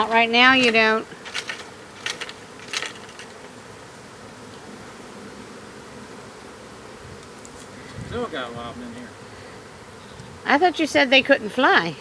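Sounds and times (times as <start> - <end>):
honeybees buzzing: 0.0 - 12.0
sharp clicks: 0.1 - 3.6.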